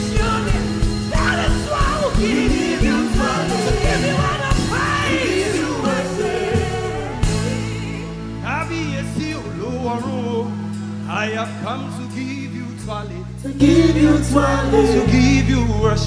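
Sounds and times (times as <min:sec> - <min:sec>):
band with steady beat: 0:00.0 - 0:08.2
person singing: 0:00.0 - 0:16.0.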